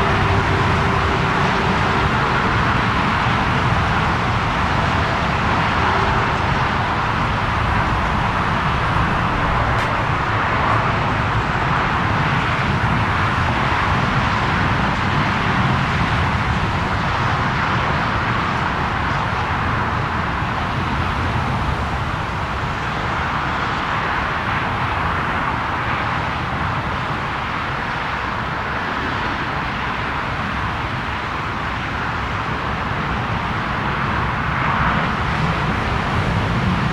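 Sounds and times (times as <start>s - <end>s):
jet engines roaring: 0.0s - 36.9s.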